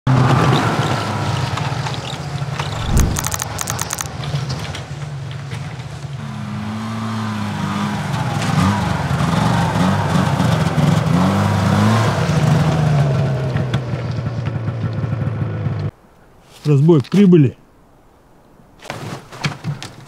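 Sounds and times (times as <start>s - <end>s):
engine running: 0.2s - 15.9s.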